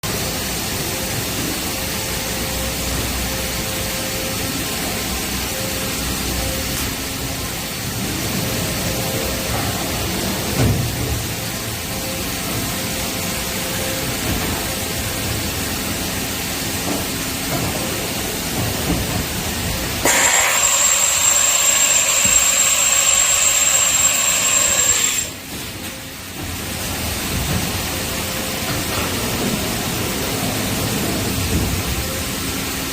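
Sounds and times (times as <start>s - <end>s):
machining center humming and hissing: 0.0s - 32.9s
faint machine whine: 0.1s - 32.9s
loud hiss with high whistle: 20.0s - 25.5s.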